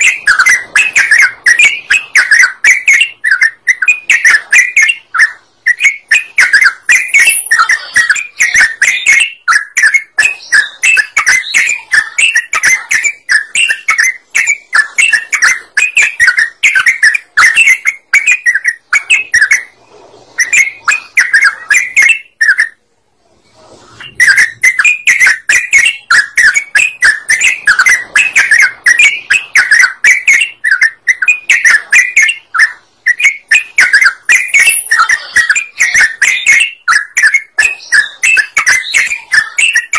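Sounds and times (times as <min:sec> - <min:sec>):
bulbul song chatter: 0:00.0 - 0:22.8, 0:23.9 - 0:39.9.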